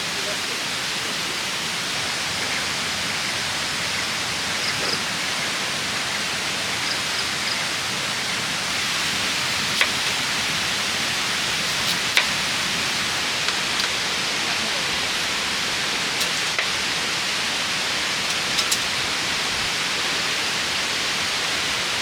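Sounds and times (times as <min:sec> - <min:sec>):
rushing water hiss: 0:00.0 - 0:22.0.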